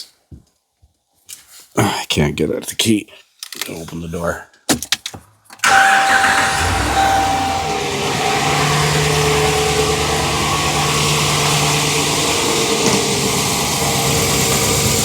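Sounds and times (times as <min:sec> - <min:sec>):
engine ticking: 0:05.6 - 0:15.0
truck engine idling: 0:05.6 - 0:15.0.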